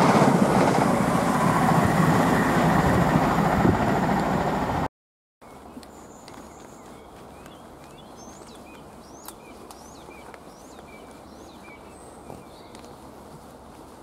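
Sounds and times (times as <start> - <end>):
small birds chirping: 5.4 - 13.9.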